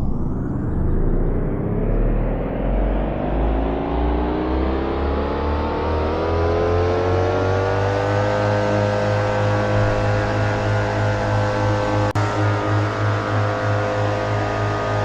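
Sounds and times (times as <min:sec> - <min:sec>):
low throbbing hum: 0:00.0 - 0:15.0.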